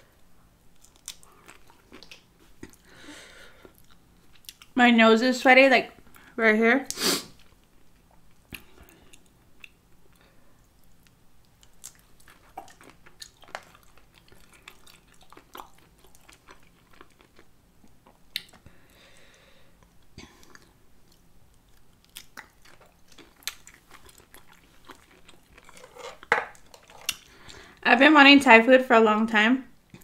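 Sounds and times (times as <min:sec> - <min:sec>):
wet chewing: 0:10.8 - 0:19.2, 0:19.8 - 0:27.6.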